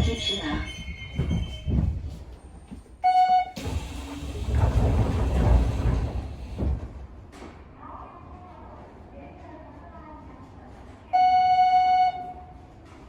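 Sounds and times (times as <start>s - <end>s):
train doors opening hiss: 3.6s - 7.0s.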